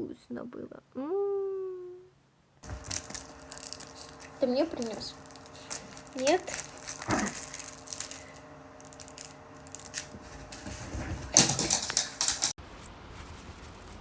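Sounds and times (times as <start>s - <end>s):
faint steady hum: 0.0s - 14.0s
rustling and knocks: 2.6s - 8.2s, 8.8s - 14.0s
dog moving about clicking: 2.6s - 12.6s.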